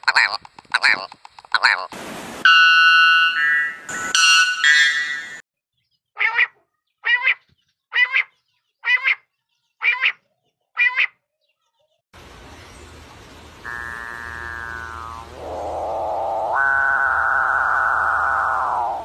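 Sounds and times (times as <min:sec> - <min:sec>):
steady background hiss: 0:12.2 - 0:19.0
bird calls: 0:12.5 - 0:19.0.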